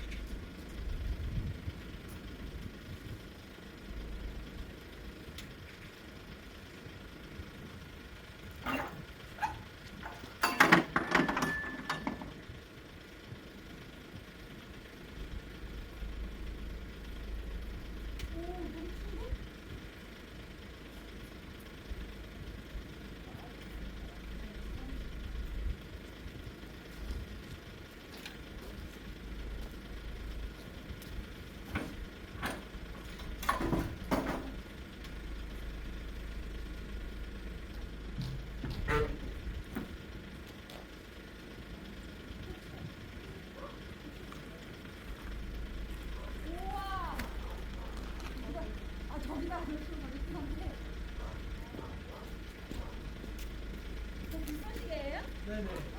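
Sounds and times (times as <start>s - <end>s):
low steady rumble: 0.0s - 55.9s
vehicle engine idling: 0.0s - 55.9s
hard knocks and clatter: 10.1s - 12.4s, 31.8s - 34.6s.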